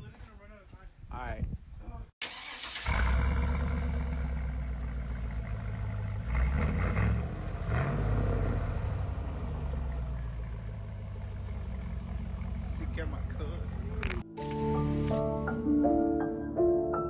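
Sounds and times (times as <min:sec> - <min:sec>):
pickup truck engine running: 0:08.8 - 0:14.2.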